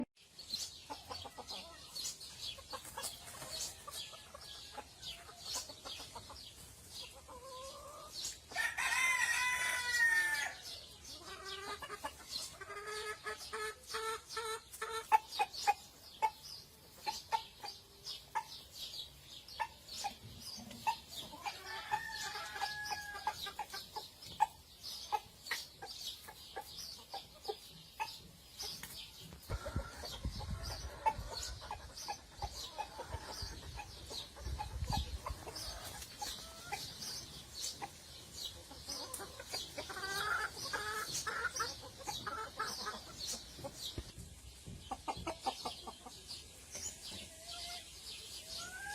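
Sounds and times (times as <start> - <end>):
chickens clucking: 0.0 - 48.9
rooster crowing: 8.6 - 10.6.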